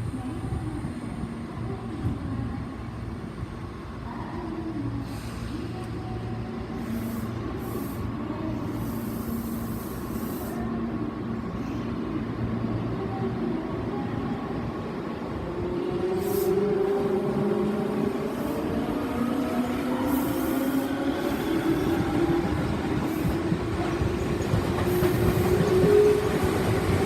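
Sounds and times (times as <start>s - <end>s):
train rolling noise: 0.0s - 27.0s.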